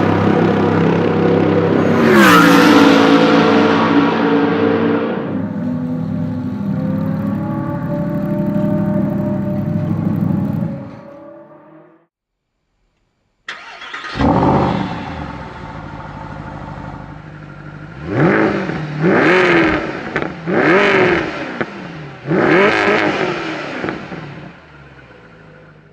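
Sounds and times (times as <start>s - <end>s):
race car engine revving: 0.0s - 12.0s, 13.5s - 25.9s.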